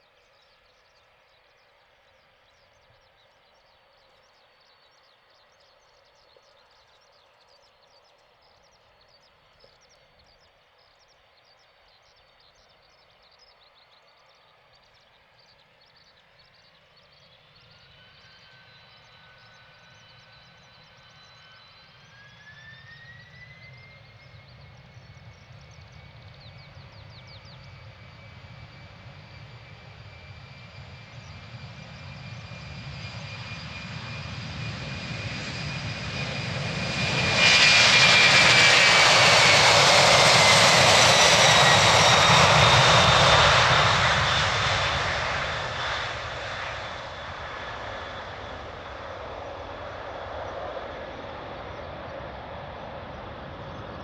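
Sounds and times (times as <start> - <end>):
jet engines whining and roaring: 17.2 - 54.0.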